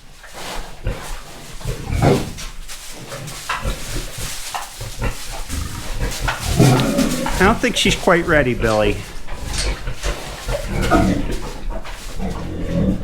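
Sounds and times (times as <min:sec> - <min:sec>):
pigs grunting: 0:03.6 - 0:13.0.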